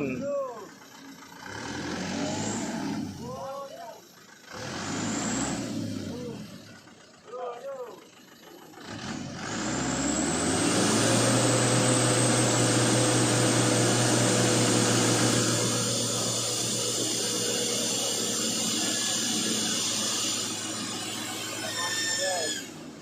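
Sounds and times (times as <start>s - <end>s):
truck engine revving under load: 0.0s - 7.2s, 8.0s - 23.0s.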